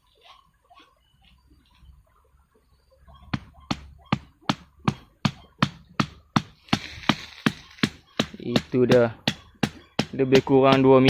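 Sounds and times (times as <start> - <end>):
rapid striking blows: 3.3 - 11.0.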